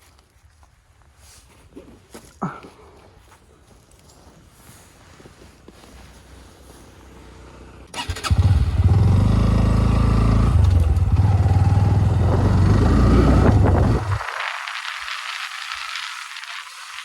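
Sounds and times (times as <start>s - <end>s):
motorcycle engine running: 7.1s - 17.0s.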